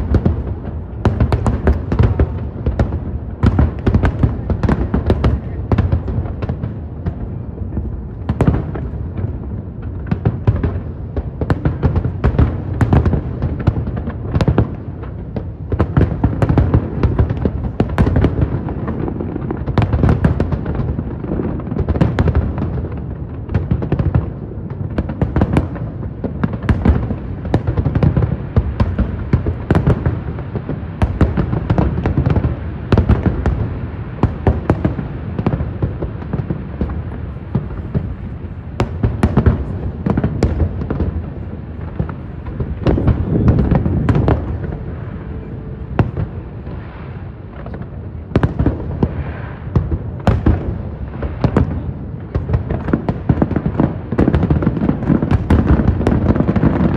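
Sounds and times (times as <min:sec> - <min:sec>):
fireworks bangs and crackles: 0:00.0 - 0:56.9
low rumble of bursting shells: 0:23.8 - 0:54.5.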